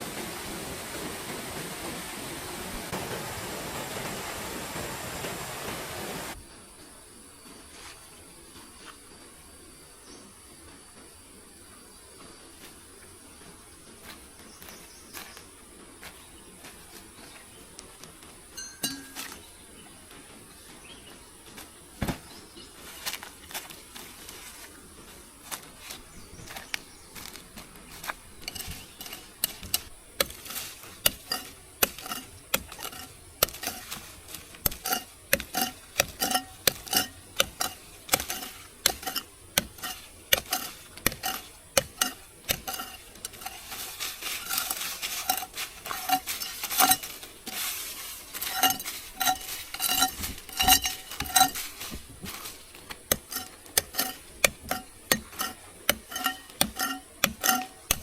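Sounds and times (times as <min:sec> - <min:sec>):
metal utensil clinking in pot: 0:18.6 - 0:19.4, 0:31.1 - 0:47.7, 0:48.4 - 0:51.8, 0:53.1 - 0:58.0.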